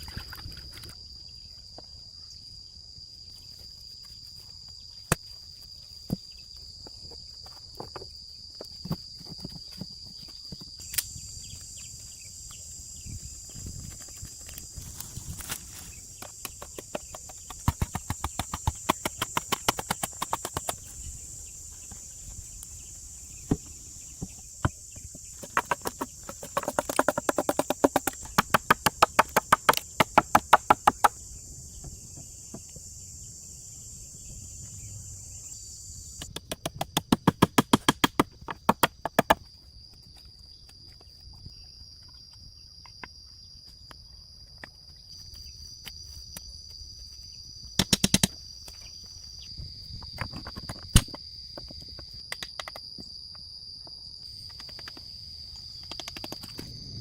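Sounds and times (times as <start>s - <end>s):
high insect drone: 0.0s - 57.0s
rapid hand tool knocks: 25.4s - 31.2s.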